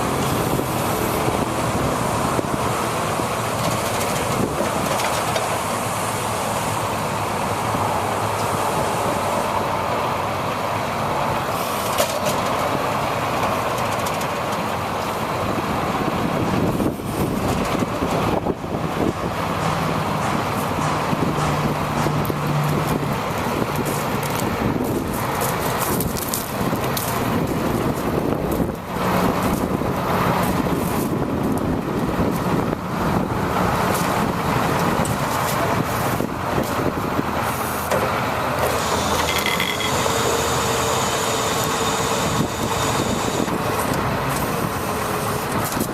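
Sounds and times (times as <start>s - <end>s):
wind buffeting microphone: 0.0s - 9.8s, 15.4s - 37.6s, 41.6s - 45.9s
truck engine running: 0.0s - 45.9s.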